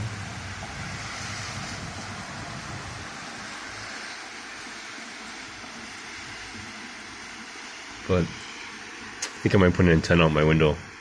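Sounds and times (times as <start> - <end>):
car tyres hissing on wet road: 0.0 - 11.0
falling rain: 0.0 - 11.0.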